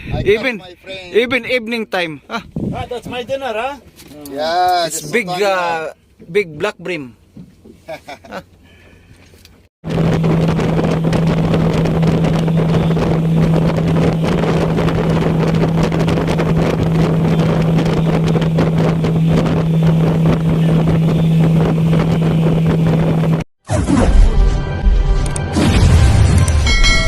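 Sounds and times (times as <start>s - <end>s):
wind buffeting the microphone: 0.0s - 0.4s, 2.4s - 3.6s, 9.9s - 23.4s
motorboat engine humming: 7.1s - 23.4s
wind and water rushing: 9.8s - 23.4s.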